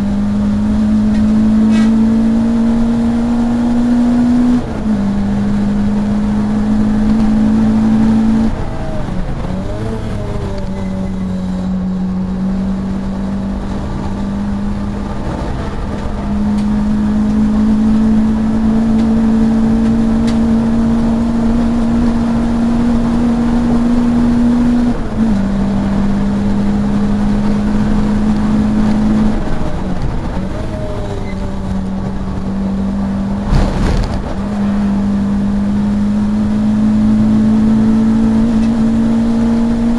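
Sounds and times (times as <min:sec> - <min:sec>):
race car engine from inside: 0:00.0 - 0:39.9
sharp thump: 0:33.4 - 0:34.5.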